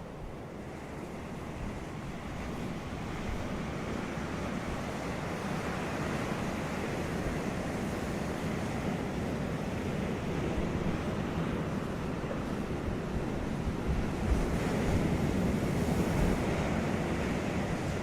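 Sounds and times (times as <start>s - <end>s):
surf breaking on a beach: 0.9s - 18.0s
wind noise on microphone: 12.3s - 18.0s.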